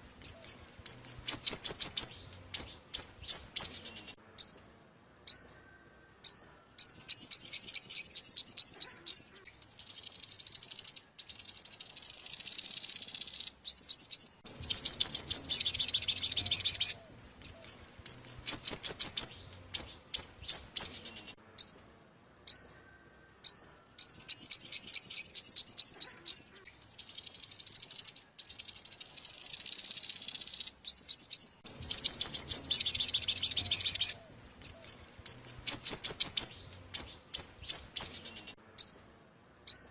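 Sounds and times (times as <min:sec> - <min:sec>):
bird high-pitched trills: 0:00.0 - 0:04.7, 0:05.3 - 0:21.9, 0:22.5 - 0:39.9.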